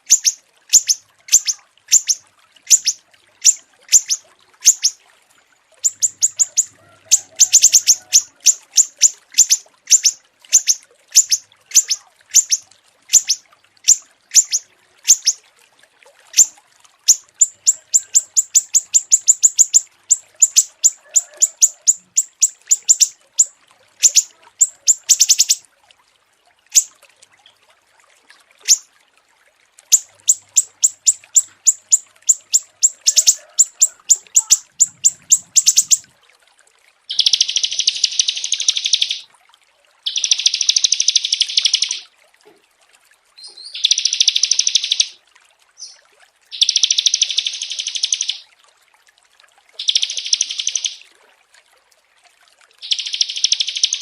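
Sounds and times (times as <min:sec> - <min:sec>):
buzzy bird trills: 0:00.0 - 0:05.0, 0:05.8 - 0:15.4, 0:16.3 - 0:25.6, 0:26.7 - 0:26.9, 0:28.6 - 0:28.8, 0:29.9 - 0:36.0, 0:37.1 - 0:39.2, 0:40.1 - 0:42.0, 0:43.8 - 0:45.2, 0:46.5 - 0:48.4, 0:49.8 - 0:51.0, 0:52.8 - 0:54.0
songbirds chirping: 0:00.0 - 0:05.0, 0:05.8 - 0:15.4, 0:17.1 - 0:25.6, 0:29.9 - 0:36.1, 0:37.1 - 0:39.2, 0:40.1 - 0:42.0, 0:49.8 - 0:51.0, 0:52.8 - 0:54.0.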